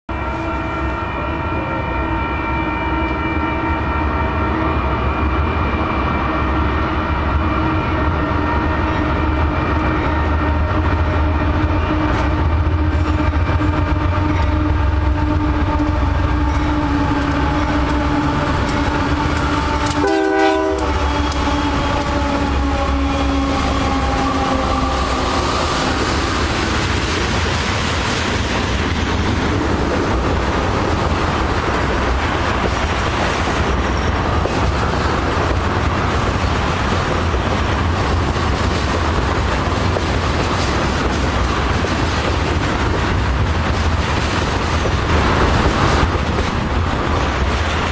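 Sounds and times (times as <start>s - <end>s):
train air horn: 0.1s - 26.7s
train wheels rumbling on rail: 0.1s - 47.9s.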